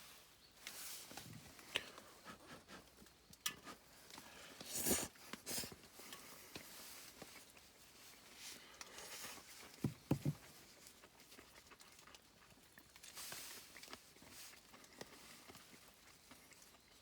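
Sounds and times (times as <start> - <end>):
dull knocks: 9.8 - 10.4.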